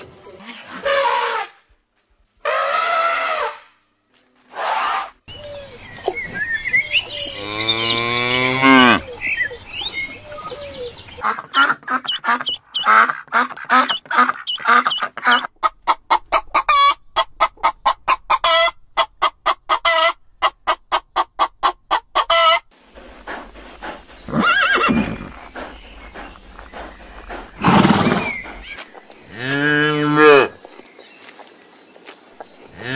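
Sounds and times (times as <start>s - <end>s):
waterfowl honking: 11.2s - 15.5s
horse whinnying: 24.3s - 25.4s, 27.6s - 28.6s.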